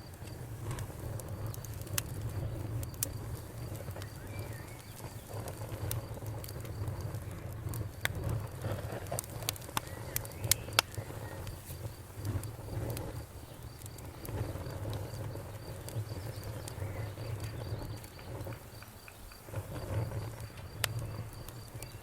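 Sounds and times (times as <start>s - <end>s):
bonfire crackling and popping: 0.0s - 22.0s
crickets chirping: 0.0s - 22.0s
low fire rumble: 0.0s - 22.0s.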